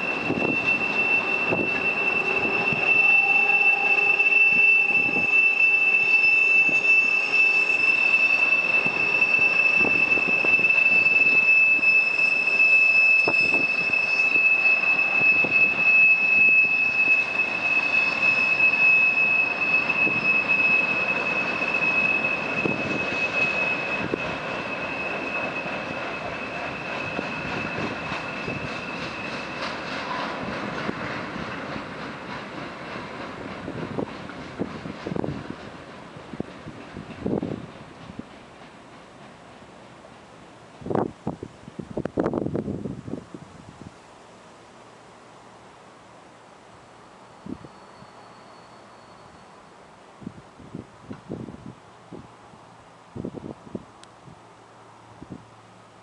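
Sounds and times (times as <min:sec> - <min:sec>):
train wheels squealing on rails: 0:00.0 - 0:41.4, 0:46.2 - 0:53.8
freight train rumbling clatter: 0:00.0 - 0:43.8.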